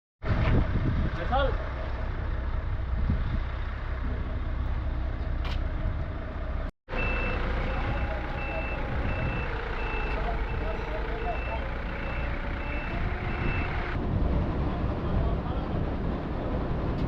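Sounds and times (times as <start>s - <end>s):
truck engine running: 0.3s - 17.0s
reversing alarm beeping: 6.9s - 14.0s.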